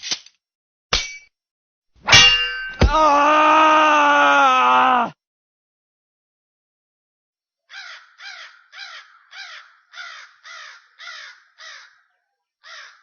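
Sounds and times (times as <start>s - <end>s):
crow cawing: 7.7s - 13.0s.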